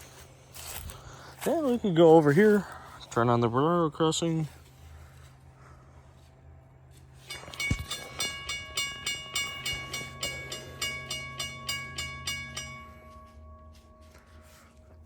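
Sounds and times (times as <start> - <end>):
railroad crossing bell ringing: 7.1 - 15.0.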